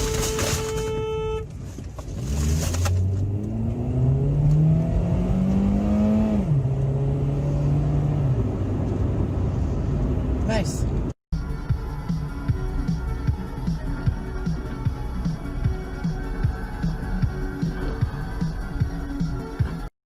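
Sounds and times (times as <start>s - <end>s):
car engine accelerating: 2.1s - 11.1s.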